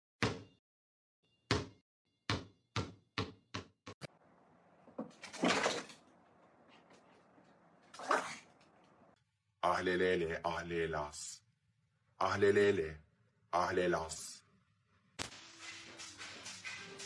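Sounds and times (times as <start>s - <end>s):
rustling scraping noise: 15.4s - 17.0s.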